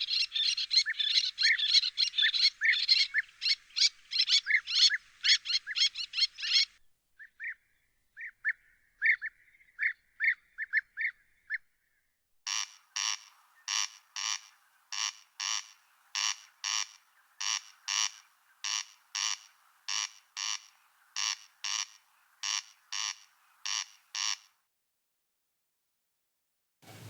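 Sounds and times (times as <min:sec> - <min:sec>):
songbirds singing: 0:00.0 - 0:12.0, 0:12.6 - 0:24.5
harsh rasping bird call: 0:12.5 - 0:24.6.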